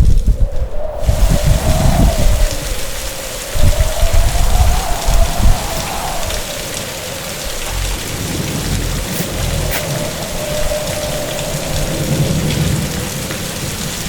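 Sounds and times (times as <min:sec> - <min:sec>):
heavy rain pouring: 0:00.0 - 0:14.0
thunder rumbling: 0:00.0 - 0:14.0
thin wavering whistle: 0:03.6 - 0:06.6.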